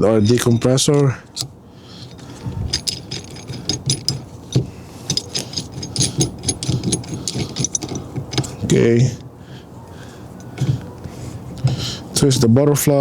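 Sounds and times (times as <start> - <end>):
metallic clicks and rattles: 0.0 - 9.3.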